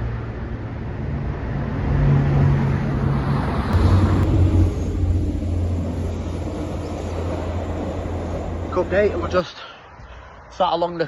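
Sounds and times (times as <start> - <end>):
vehicle passing by: 0.0 - 10.5.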